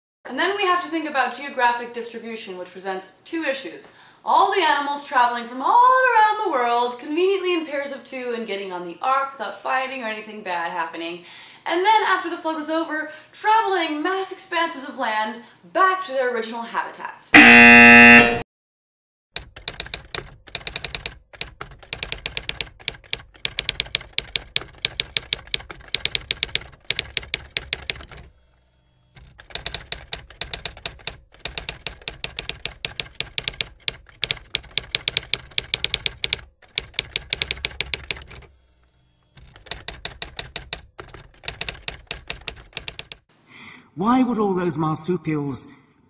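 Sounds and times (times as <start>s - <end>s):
typewriter keys clacking: 19.4s - 28.3s, 29.2s - 38.5s, 39.4s - 43.3s.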